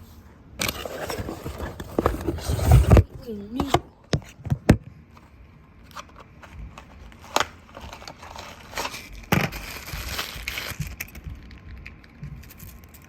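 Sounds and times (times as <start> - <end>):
plastic packaging crinkling: 5.8 - 13.0.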